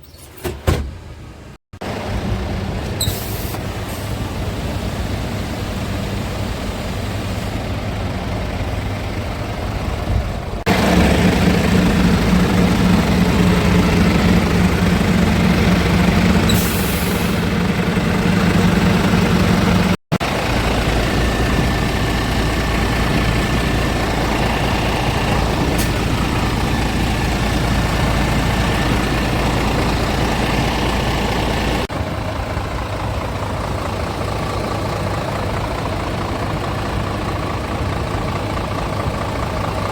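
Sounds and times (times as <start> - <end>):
truck diesel engine running: 1.2 - 39.9
brief hiss: 3.0 - 4.2.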